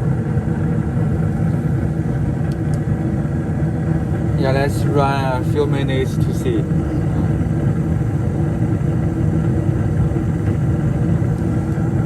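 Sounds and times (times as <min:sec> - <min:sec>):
gas furnace running: 0:00.0 - 0:12.0.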